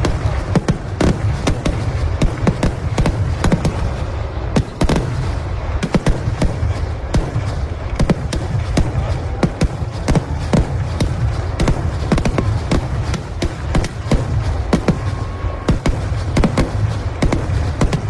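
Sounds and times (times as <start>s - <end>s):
continuous low rumble: 0.0s - 18.0s
fireworks banging: 0.0s - 18.0s.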